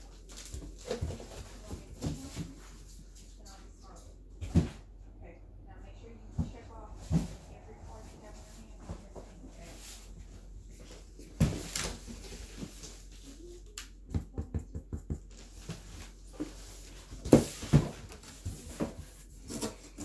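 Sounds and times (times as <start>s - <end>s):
boxes knocking and thumping: 0.6s - 2.8s, 10.8s - 12.9s, 14.0s - 20.0s.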